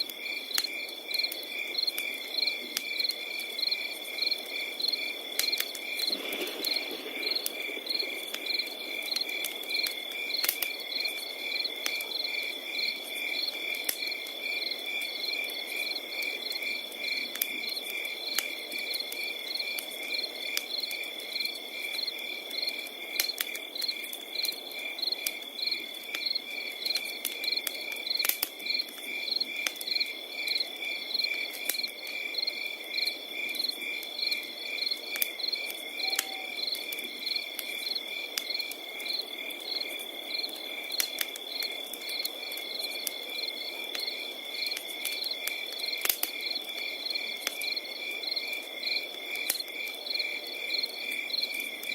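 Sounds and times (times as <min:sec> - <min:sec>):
crickets chirping: 0:00.0 - 0:51.9
wood fire crackling and popping: 0:00.0 - 0:51.9
soft rush of flame: 0:05.9 - 0:09.1.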